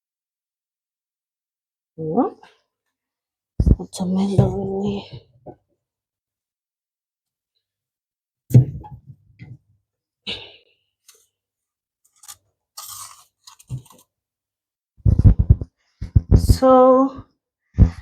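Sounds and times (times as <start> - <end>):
plastic crinkling: 12.1 - 14.0.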